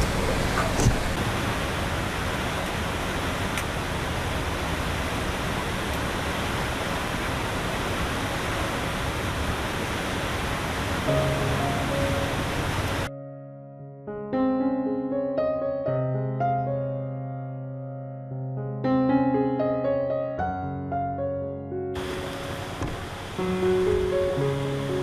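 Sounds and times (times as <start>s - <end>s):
heavy rain pouring: 0.0s - 13.1s, 22.0s - 25.0s
faint piano music: 11.0s - 25.0s.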